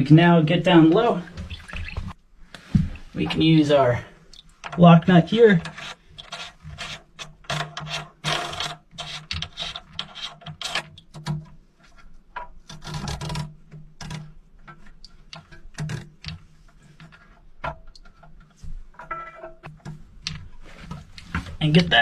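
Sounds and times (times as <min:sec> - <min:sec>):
nut scraping on threaded shank: 0:04.7 - 0:11.3.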